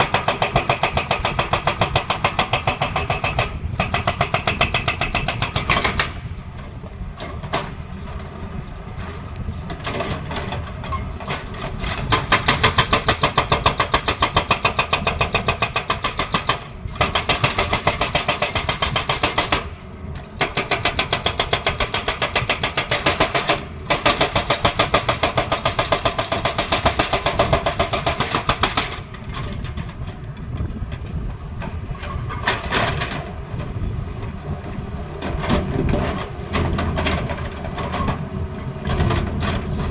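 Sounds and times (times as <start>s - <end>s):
hydraulic breaker hammering: 0.0s - 6.4s, 11.4s - 19.8s, 20.4s - 30.0s
excavator diesel engine running: 0.1s - 39.9s.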